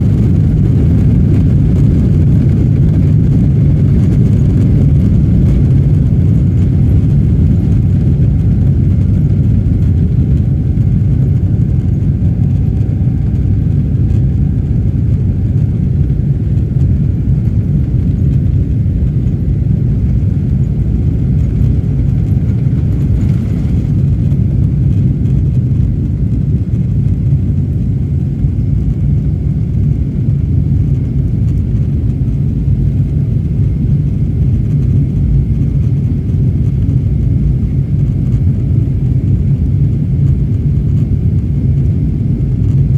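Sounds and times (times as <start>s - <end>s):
jet airliner taking off: 0.0s - 42.9s.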